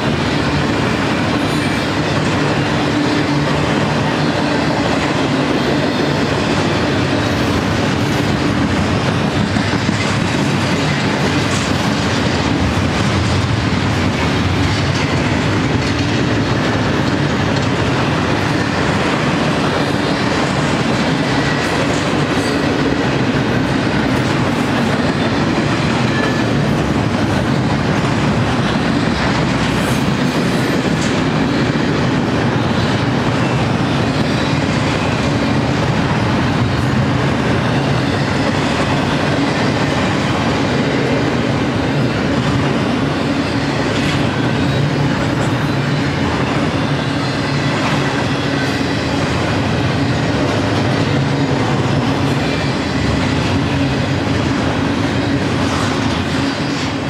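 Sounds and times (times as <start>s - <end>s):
freight train rolling past: 0.0s - 57.0s.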